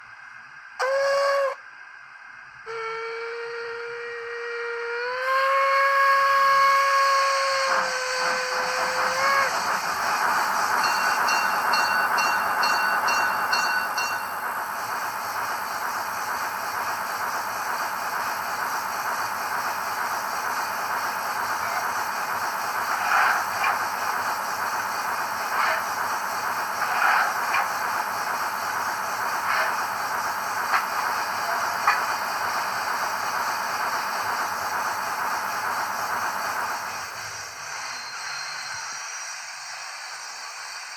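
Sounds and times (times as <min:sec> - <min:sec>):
steady steam hiss: 0:00.0 - 0:40.9
steam whistle through small speaker: 0:00.8 - 0:01.6, 0:02.6 - 0:09.6.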